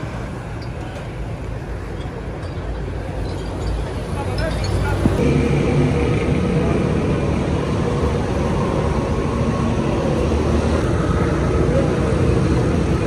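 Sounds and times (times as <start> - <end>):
car engine idling: 5.2 - 13.0.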